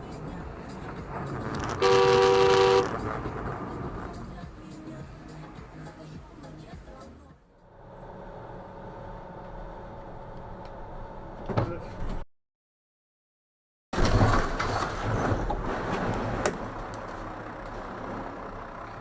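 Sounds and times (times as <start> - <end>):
traffic noise: 0.0 - 6.7, 14.4 - 19.0
vehicle road noise: 0.0 - 12.2, 14.0 - 19.0.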